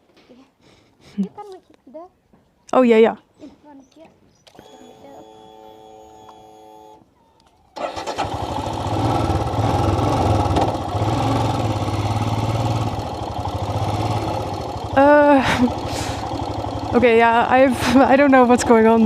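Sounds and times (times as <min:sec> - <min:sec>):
motorcycle engine starting and running: 0:04.5 - 0:19.0.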